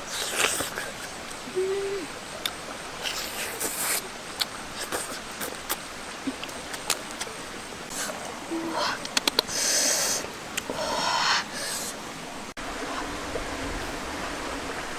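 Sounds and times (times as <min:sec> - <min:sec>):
sharp clicks and crackles: 0:09.0 - 0:09.5.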